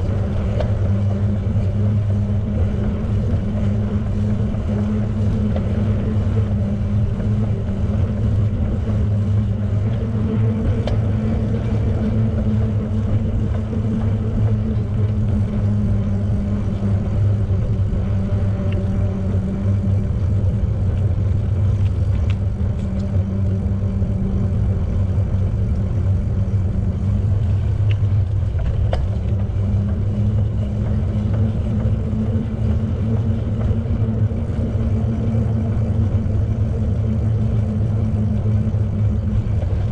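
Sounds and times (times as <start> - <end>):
bicycle tyres rolling: 0.0 - 39.9
wind on microphone: 0.0 - 39.9
faint ticks: 17.7 - 23.6, 27.2 - 39.9.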